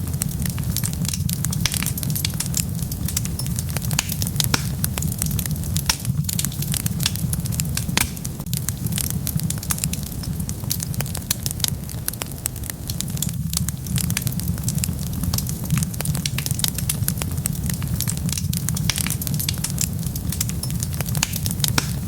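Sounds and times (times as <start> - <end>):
steady low rumble: 0.0 - 22.0
wood fire crackling: 0.0 - 22.0.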